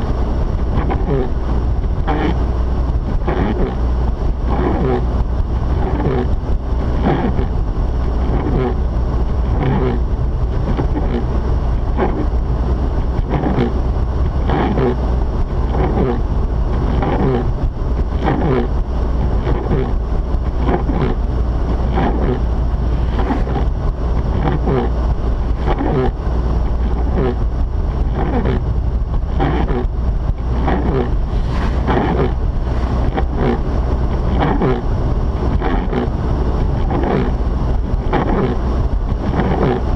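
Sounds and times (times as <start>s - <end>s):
car engine and tyre rumble: 0.0s - 39.9s
short swishing noises: 30.6s - 33.6s.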